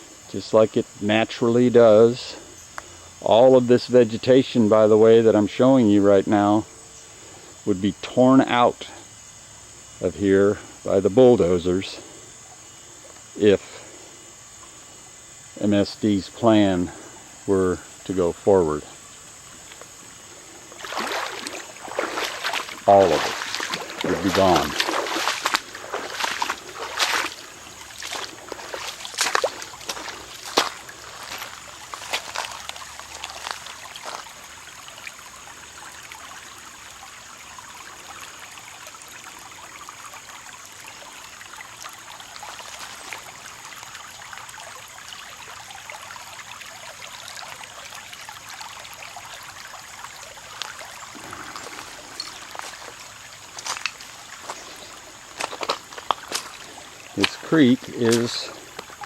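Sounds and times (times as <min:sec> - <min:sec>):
water trickling over rocks: 0:14.3 - 0:59.0.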